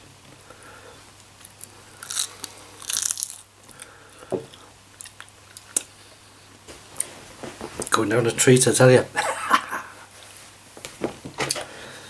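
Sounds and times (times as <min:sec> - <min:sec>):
person biting meat crunchily: 0:01.6 - 0:03.9.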